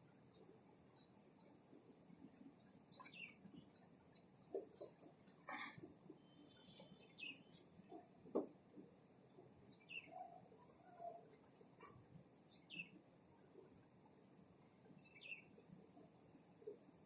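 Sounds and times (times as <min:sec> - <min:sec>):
faint bird chirps: 0:00.0 - 0:08.2, 0:09.3 - 0:11.9, 0:14.9 - 0:15.8.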